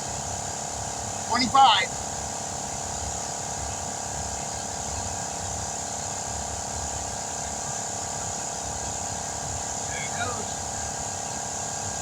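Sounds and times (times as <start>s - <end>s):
steady hum: 1.1s - 2.0s, 9.6s - 12.0s.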